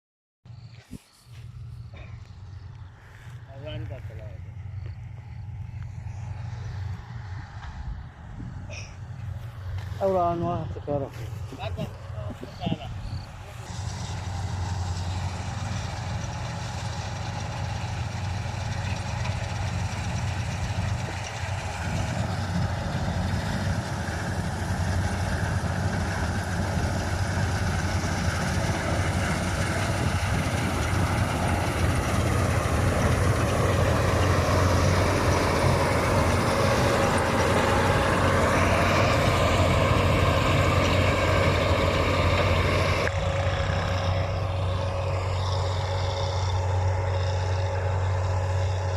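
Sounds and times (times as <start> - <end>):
combine harvester engine drone: 0.5 - 48.9.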